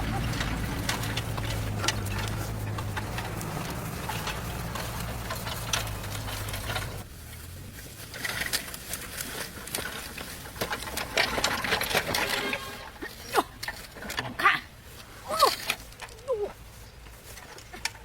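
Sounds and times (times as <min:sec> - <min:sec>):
farm engine idling: 0:00.0 - 0:14.2.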